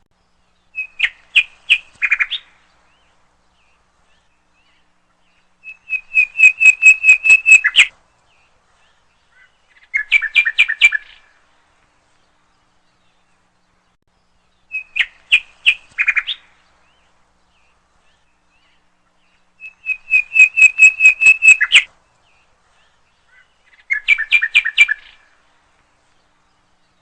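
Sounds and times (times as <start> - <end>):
songbird singing rapid chirps: 0.0 - 27.0.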